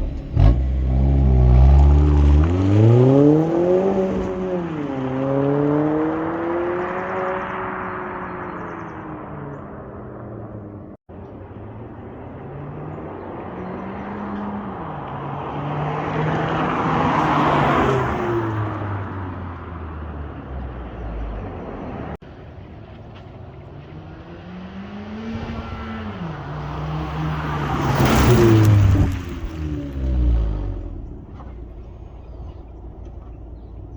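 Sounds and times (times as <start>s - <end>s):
car engine accelerating through gears: 0.0s - 10.8s, 23.5s - 33.9s.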